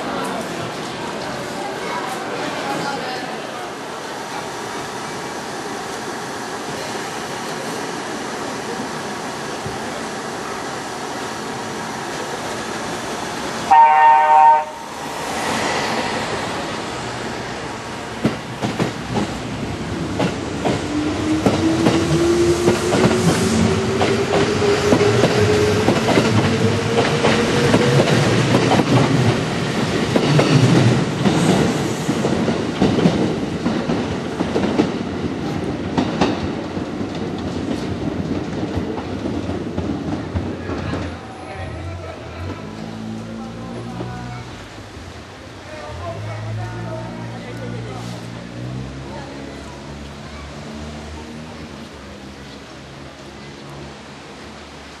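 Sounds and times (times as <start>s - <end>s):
train horn blast: 13.7s - 14.9s.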